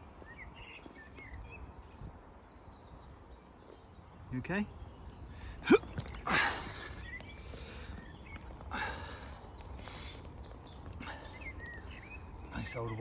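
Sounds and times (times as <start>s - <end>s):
small birds chirping: 0.0s - 13.0s
breathy exhales: 8.7s - 10.3s.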